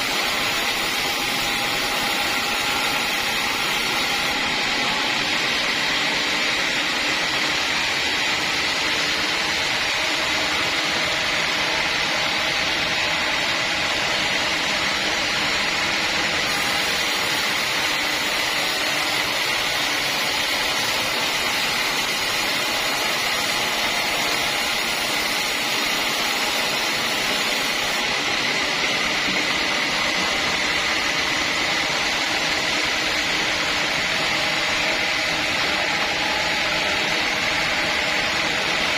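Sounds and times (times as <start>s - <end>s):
saw running with high whine: 0.0s - 38.9s.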